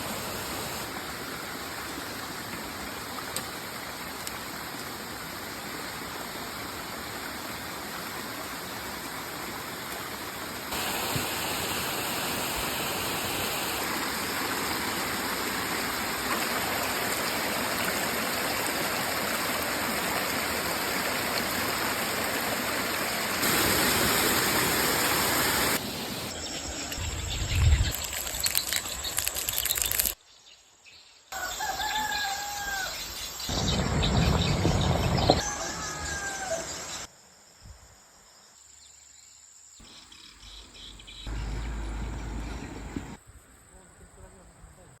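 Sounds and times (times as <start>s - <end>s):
rushing water: 0.0s - 26.4s.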